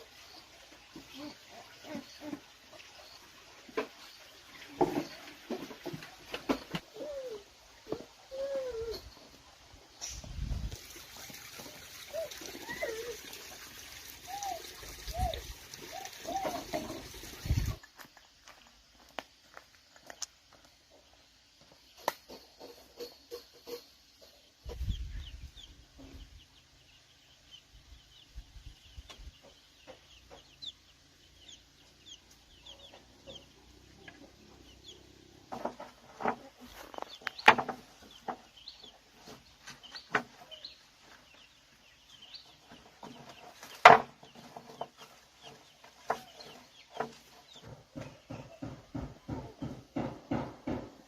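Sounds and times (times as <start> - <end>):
chickens clucking: 0.0 - 18.1, 20.9 - 26.9, 27.5 - 51.0
sharp knocks: 47.0 - 51.0.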